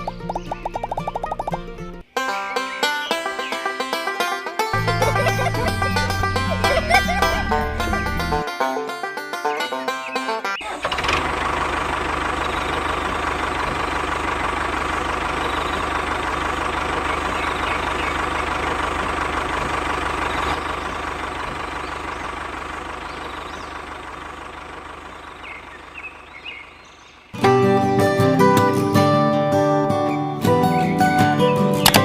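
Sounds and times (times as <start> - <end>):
tractor engine idling: 0.0 - 29.2.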